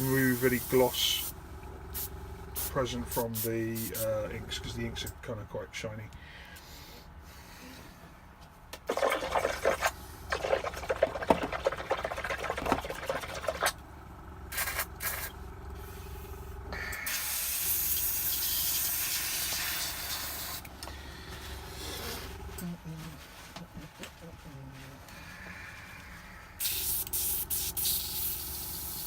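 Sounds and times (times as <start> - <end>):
airbrush spraying: 0.0 - 1.4, 2.0 - 4.2, 14.5 - 16.2, 17.0 - 20.7, 26.6 - 29.0
faint steady hum: 0.0 - 29.0.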